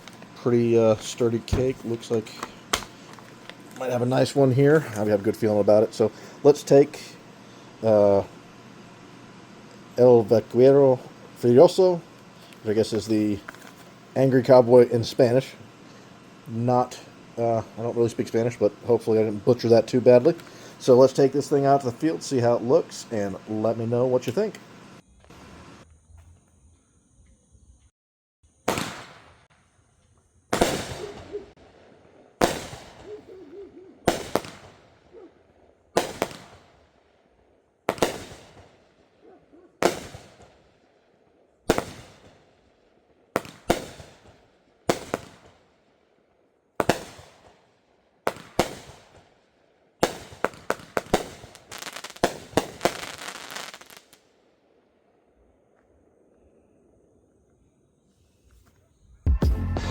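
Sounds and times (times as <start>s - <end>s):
firework shots banging: 0.0s - 3.4s, 28.6s - 29.5s, 30.5s - 31.6s, 32.4s - 35.0s, 36.0s - 36.8s, 37.9s - 38.9s, 39.7s - 40.6s, 41.7s - 42.4s, 43.4s - 45.6s, 46.8s - 47.6s, 48.3s - 49.3s, 50.0s - 54.2s
firework crackle: 0.0s - 7.2s, 28.6s - 29.6s, 30.5s - 33.2s, 34.0s - 35.0s, 35.9s - 37.1s, 37.9s - 39.0s, 39.8s - 40.8s, 41.6s - 42.6s, 43.3s - 45.7s, 46.8s - 47.7s, 48.3s - 49.4s, 50.0s - 54.3s.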